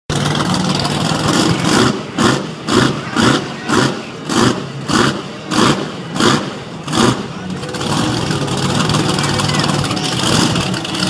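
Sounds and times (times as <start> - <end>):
truck engine revving: 0.1 - 11.0.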